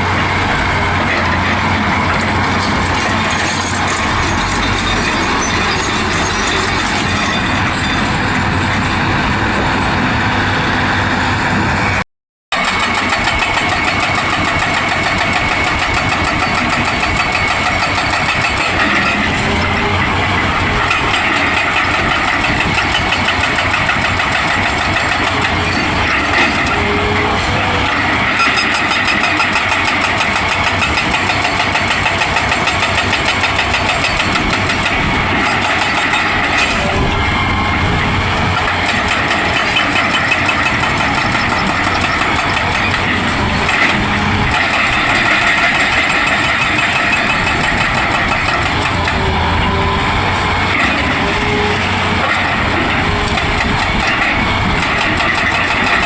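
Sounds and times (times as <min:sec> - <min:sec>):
excavator running under load: 0:00.0 - 0:56.0
hydraulic hammering: 0:12.5 - 0:56.0.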